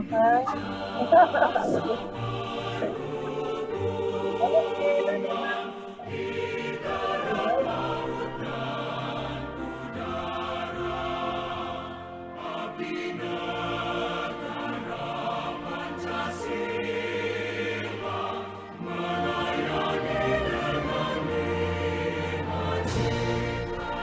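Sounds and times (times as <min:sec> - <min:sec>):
choir singing: 0:00.0 - 0:24.0.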